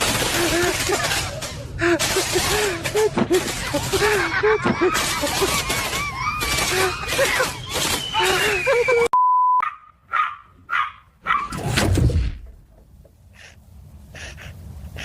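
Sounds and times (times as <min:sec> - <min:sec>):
short steady beep: 0:09.2 - 0:09.6
dog barking: 0:09.6 - 0:11.6.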